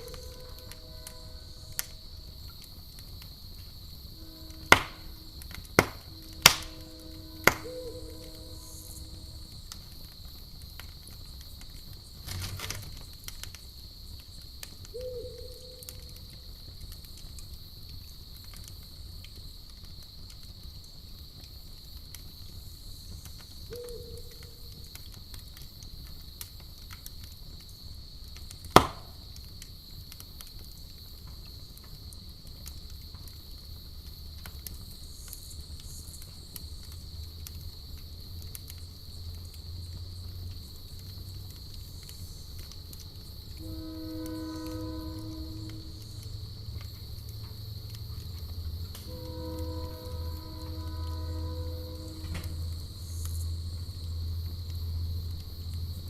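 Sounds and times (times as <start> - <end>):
campfire crackling: 0.0 - 56.0
crickets chirring: 0.0 - 56.0
owl hoots: 6.1 - 9.5, 14.9 - 16.1, 23.7 - 24.7.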